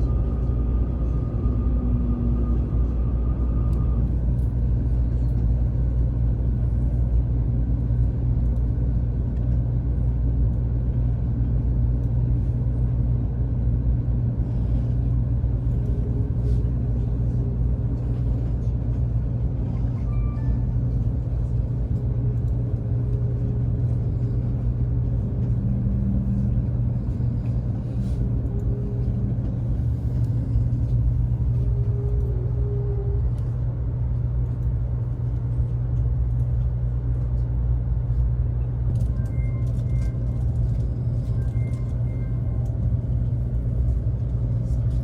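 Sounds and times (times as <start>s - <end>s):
train rumbling: 0.0s - 45.0s.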